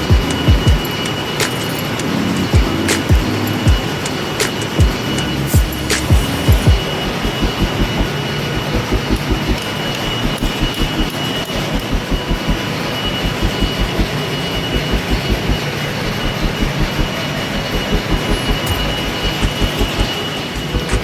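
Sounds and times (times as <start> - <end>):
constant high whine: 0.0 - 21.0.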